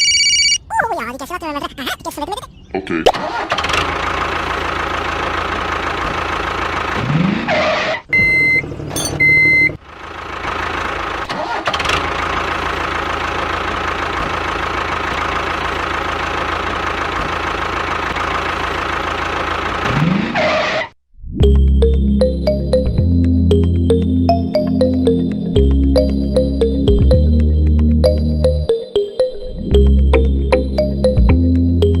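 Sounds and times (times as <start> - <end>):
engine running: 3.4 - 7.4, 8.7 - 20.2
short electronic beeps: 8.2 - 9.7.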